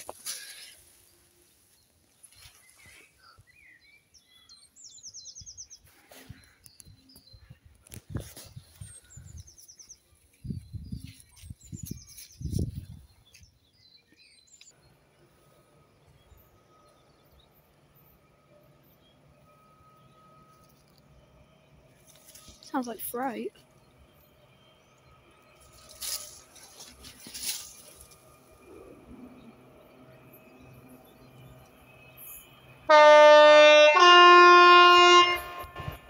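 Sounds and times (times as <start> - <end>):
small birds chirping and trilling: 0.1 - 18.1.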